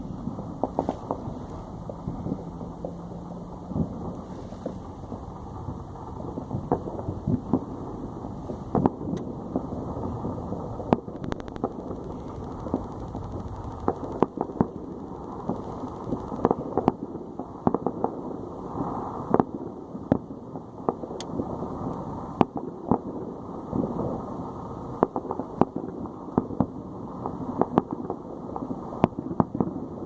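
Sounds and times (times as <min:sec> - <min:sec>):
low rumble: 0:00.0 - 0:17.3
distant fireworks popping: 0:00.0 - 0:30.0.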